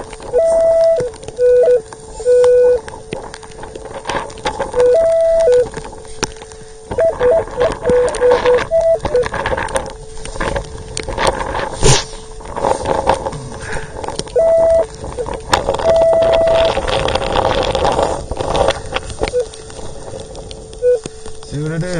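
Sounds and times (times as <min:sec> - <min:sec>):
clicks: 0:00.0 - 0:11.4
wind noise: 0:00.0 - 0:21.4
metal detector hum: 0:00.0 - 0:21.9
metal detector beeps: 0:00.3 - 0:02.8, 0:04.7 - 0:05.7, 0:06.9 - 0:09.4, 0:14.3 - 0:16.7, 0:19.2 - 0:19.5, 0:20.8 - 0:21.1.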